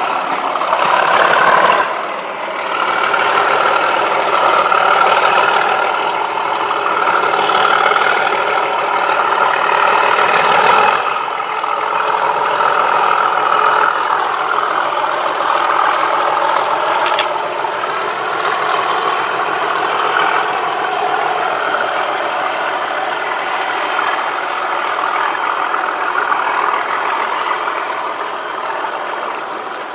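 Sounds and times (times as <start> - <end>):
diesel locomotive engine running: 0.0 - 29.9
sharp click: 17.0 - 17.4.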